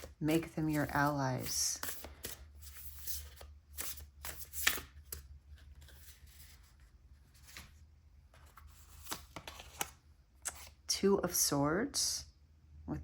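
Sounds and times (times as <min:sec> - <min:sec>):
cards snapping and rustling: 0:08.8 - 0:10.7.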